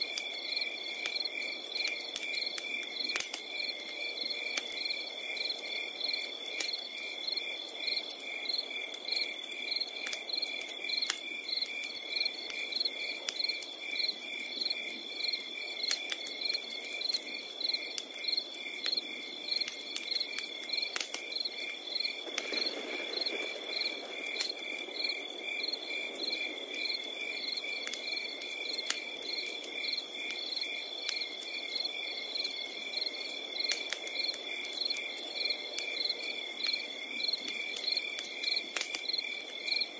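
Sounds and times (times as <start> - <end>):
campfire crackling: 0.0 - 39.9
crickets chirping: 0.0 - 39.9
low rush of fire: 22.2 - 28.5.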